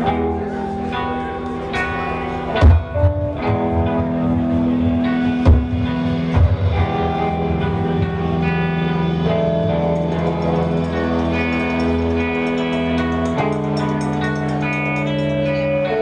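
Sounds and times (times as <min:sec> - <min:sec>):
guitars and bass droning chords: 0:00.0 - 0:16.0
heavy drum hits: 0:04.9 - 0:07.8.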